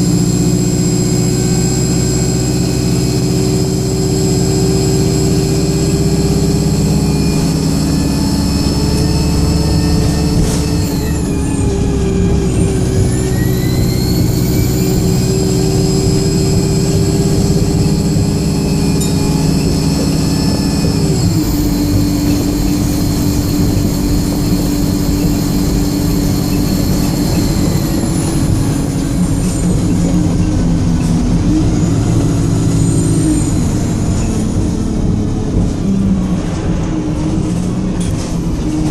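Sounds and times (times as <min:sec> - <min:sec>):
high-pitched screaming whine: 0:00.0 - 0:30.7
bus diesel engine running hard: 0:00.0 - 0:38.9.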